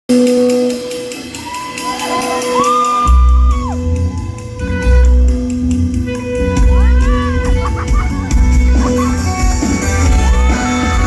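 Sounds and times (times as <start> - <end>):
electric guitar sliding notes: 0.3 - 11.0
heavy bass line: 3.1 - 11.0.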